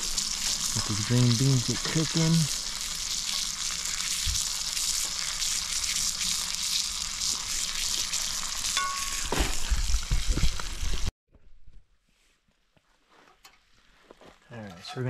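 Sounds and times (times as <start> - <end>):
green beans sizzling in grease: 0.0 - 11.1.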